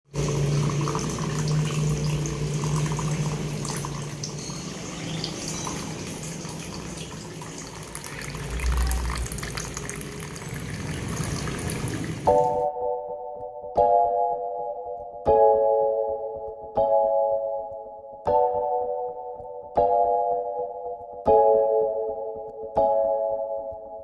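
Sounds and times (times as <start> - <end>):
fountain water trickling: 0.1 - 12.6
music: 12.2 - 24.0.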